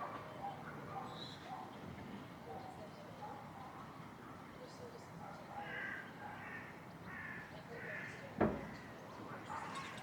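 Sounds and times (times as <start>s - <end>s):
thump: 8.4s - 8.7s.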